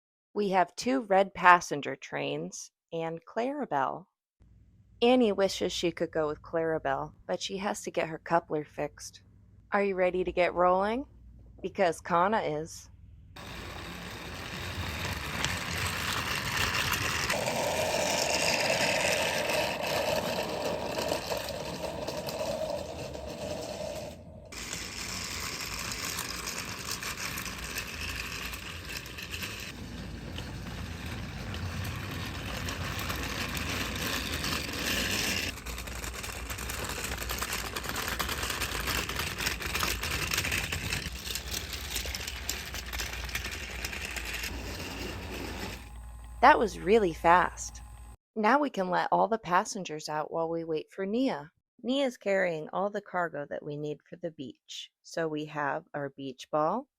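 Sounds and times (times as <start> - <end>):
train wheels rattling: 13.4 - 45.4
toy train motor whirring: 13.4 - 48.2.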